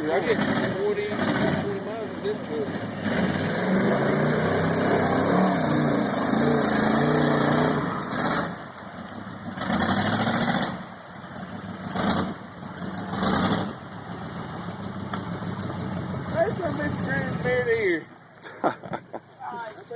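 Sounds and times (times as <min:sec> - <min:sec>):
truck engine revving: 0:00.0 - 0:18.1.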